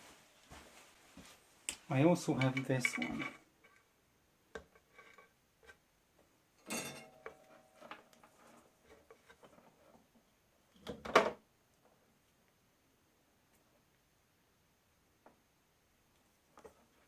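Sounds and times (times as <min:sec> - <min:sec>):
tools clattering on workbench: 0:06.6 - 0:08.1
small knocks and rustles: 0:06.6 - 0:12.0, 0:16.2 - 0:17.0.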